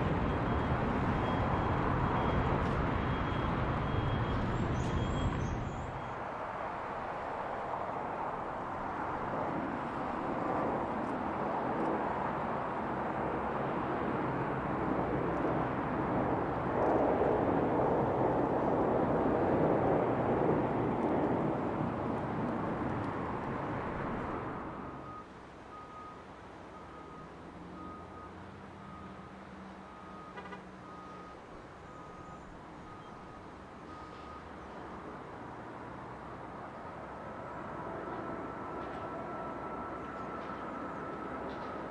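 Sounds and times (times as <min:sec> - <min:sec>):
jet airliner passing by: 0:05.9 - 0:25.2.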